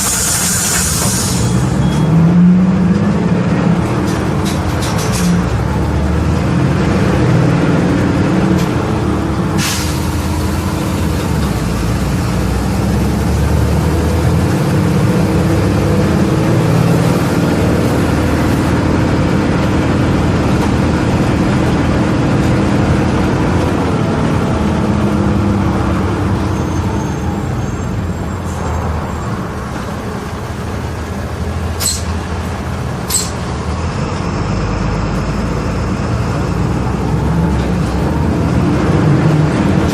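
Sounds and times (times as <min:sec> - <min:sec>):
sharp air hiss: 0:00.0 - 0:01.6, 0:09.6 - 0:10.5
bus engine accelerating: 0:00.0 - 0:39.9.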